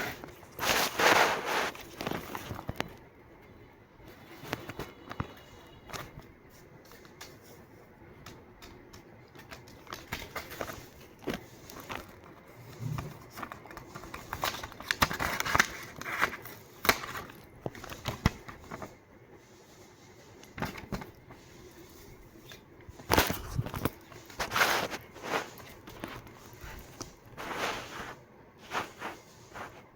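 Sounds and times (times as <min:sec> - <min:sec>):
paper rustling and crinkling: 0:00.0 - 0:03.0, 0:04.0 - 0:29.9.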